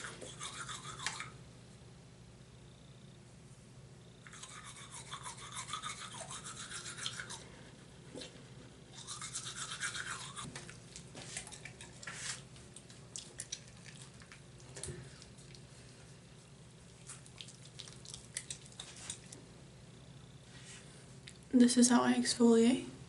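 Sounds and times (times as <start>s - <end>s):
toothbrush scrubbing teeth: 0.0s - 1.3s, 4.3s - 7.5s, 9.0s - 14.5s, 16.9s - 19.4s.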